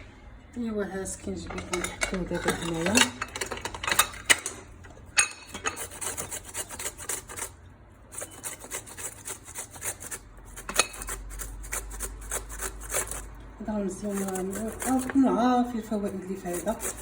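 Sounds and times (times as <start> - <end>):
ginger scraping on a grater: 5.6 - 17.0.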